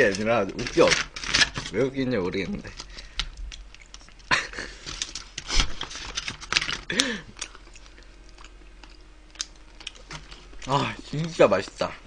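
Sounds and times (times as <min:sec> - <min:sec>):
chewing and crunchy bites: 0:03.1 - 0:11.4.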